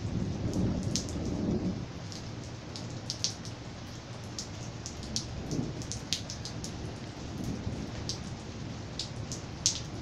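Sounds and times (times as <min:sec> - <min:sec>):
rain falling: 0:00.0 - 0:10.0.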